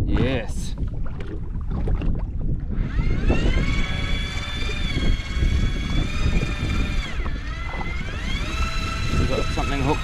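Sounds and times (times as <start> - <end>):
fishing reel motor whining: 2.7 - 10.0.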